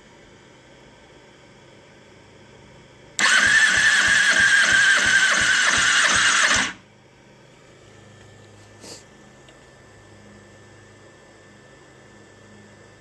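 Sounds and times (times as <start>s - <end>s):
engine starter cranking: 3.2s - 6.8s.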